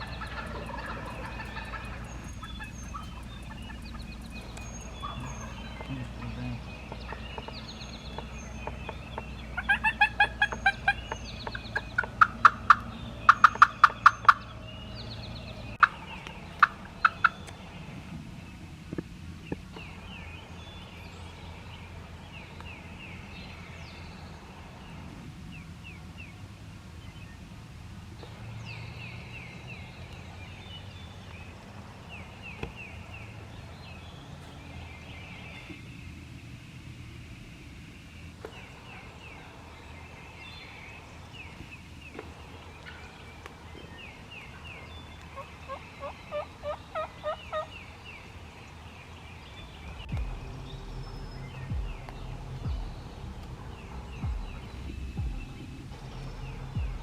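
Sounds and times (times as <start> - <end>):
turkey yelping: 0.0 - 6.3, 6.9 - 14.6, 15.8 - 17.5, 45.4 - 47.7
songbirds chirping faintly: 0.0 - 57.0.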